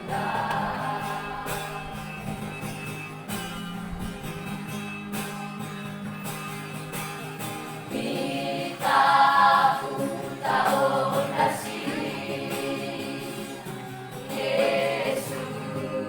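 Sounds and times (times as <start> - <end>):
vocal group singing in harmony: 0.0 - 2.8, 7.8 - 16.0.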